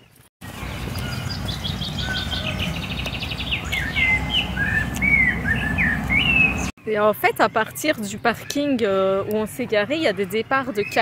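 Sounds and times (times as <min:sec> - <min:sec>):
songbirds singing: 0:00.0 - 0:11.0.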